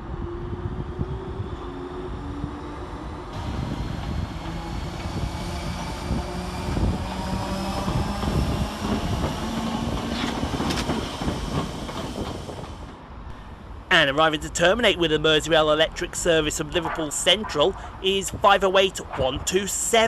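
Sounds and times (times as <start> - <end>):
train rolling rumble: 0.0 - 20.0
electric train motor hum: 0.4 - 13.0.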